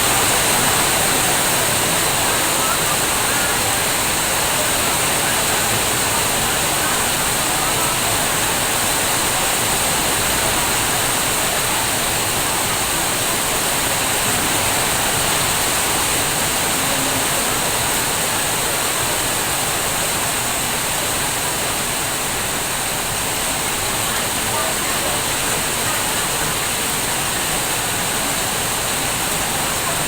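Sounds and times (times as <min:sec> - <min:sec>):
rain pouring: 0:00.0 - 0:30.0.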